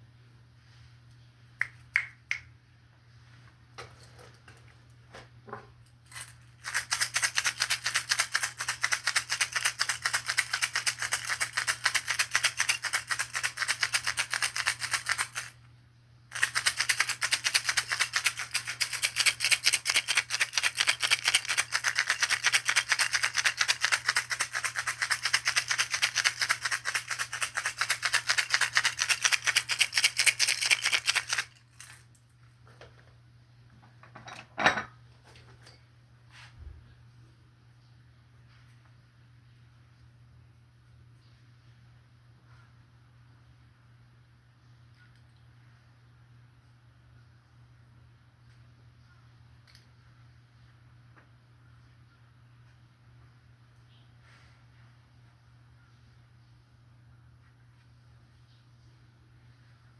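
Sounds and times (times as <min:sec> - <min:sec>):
shaker rattling: 0:06.0 - 0:15.6, 0:16.3 - 0:32.2.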